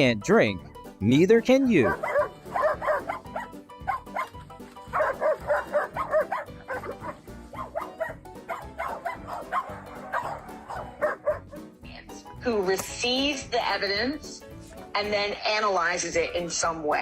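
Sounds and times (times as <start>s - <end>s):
background music: 0.0s - 17.0s
dog yipping and whining: 1.9s - 11.4s.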